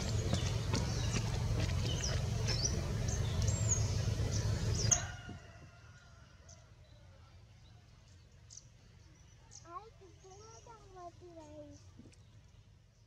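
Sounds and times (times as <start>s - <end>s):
steady low rumble: 0.0s - 4.9s
small birds chirping and whistling: 0.0s - 5.1s, 8.4s - 12.6s.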